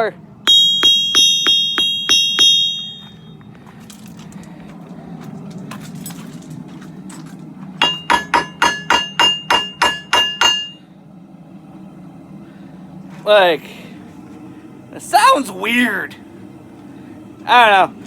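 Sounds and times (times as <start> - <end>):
hammer ringing on anvil: 0.5 - 3.4, 7.8 - 10.8.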